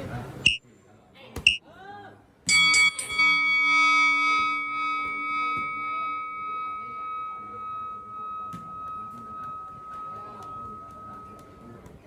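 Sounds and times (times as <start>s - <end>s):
metal bell ringing: 2.5s - 12.0s.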